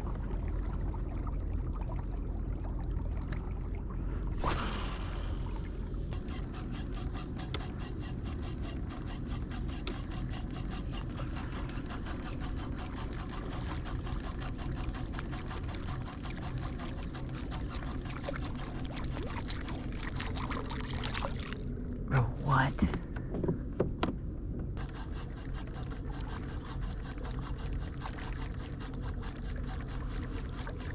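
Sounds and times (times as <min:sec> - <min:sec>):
water lapping against hull: 0:00.0 - 0:30.9
hiss rush: 0:04.4 - 0:06.1.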